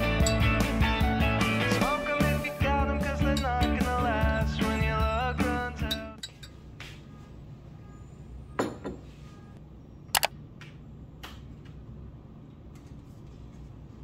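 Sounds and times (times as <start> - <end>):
sharp clicks: 10.1 - 10.3.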